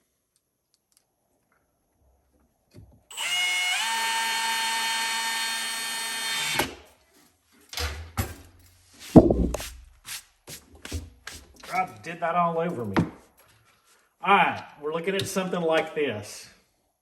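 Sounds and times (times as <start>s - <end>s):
power drill running: 3.1s - 6.8s
loud thud: 9.1s - 9.6s
sharp knocks: 9.2s - 9.6s.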